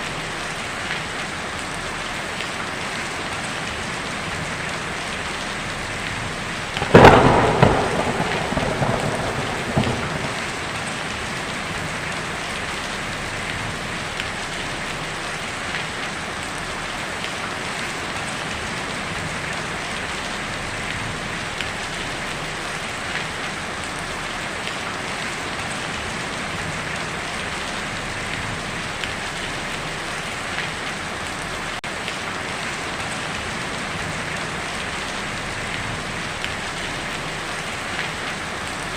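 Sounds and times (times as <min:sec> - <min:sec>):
heavy rain on a tin roof: 0:00.0 - 0:38.9
thunderclap rumbling: 0:06.8 - 0:12.8.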